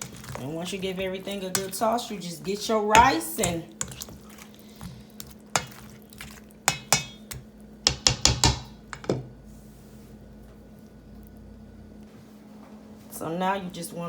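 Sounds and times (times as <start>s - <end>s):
utensil clinking against pot: 1.3s - 1.8s, 2.9s - 4.1s, 6.6s - 9.2s.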